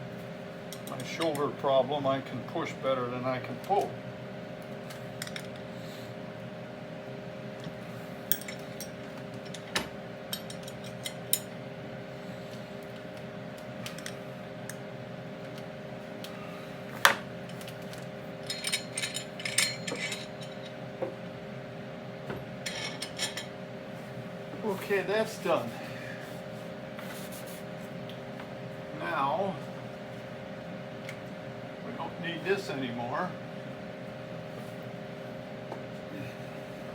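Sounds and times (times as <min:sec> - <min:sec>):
steady hum: 0:00.0 - 0:36.9
wrench and steel parts clinking: 0:08.3 - 0:09.7, 0:18.4 - 0:20.8, 0:22.7 - 0:23.5.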